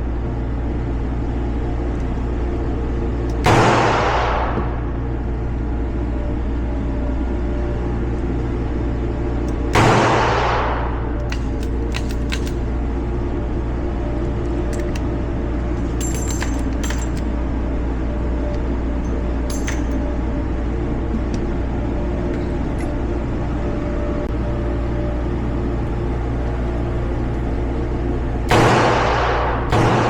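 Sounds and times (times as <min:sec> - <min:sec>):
steady low hum: 0:00.0 - 0:30.0
metallic clicks and clinks: 0:11.2 - 0:12.7, 0:15.8 - 0:17.3, 0:19.0 - 0:20.0.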